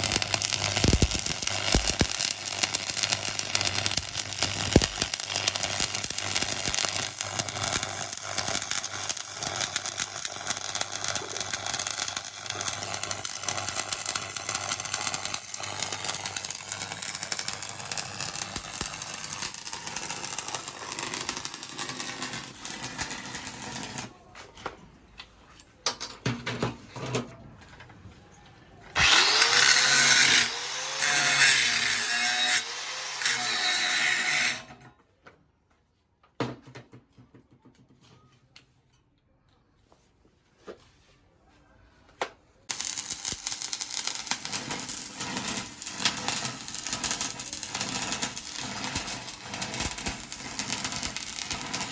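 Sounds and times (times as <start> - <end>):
welding arc crackling: 0.0 - 24.1, 29.0 - 34.3, 42.7 - 51.9
angle grinder running: 29.0 - 34.3, 42.7 - 51.9.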